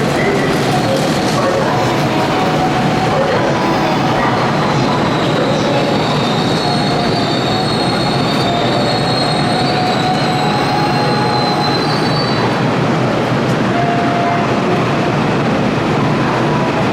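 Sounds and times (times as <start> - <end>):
train running noise: 0.0 - 16.9
train wheels squealing: 3.5 - 12.6.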